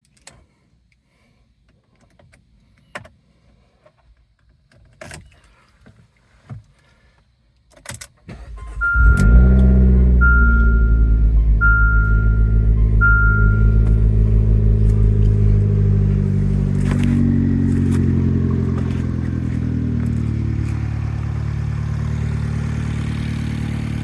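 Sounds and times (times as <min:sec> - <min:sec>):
car engine cranking and idling: 0:08.3 - 0:24.0
car warning tone beeping: 0:08.5 - 0:18.4.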